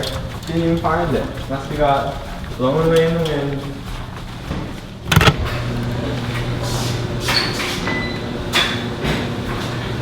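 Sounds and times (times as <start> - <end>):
machine humming: 5.1 - 7.3.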